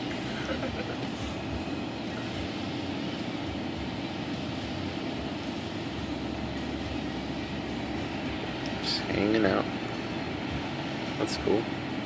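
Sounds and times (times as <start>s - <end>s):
car wash water spray and machinery: 0.0s - 12.0s.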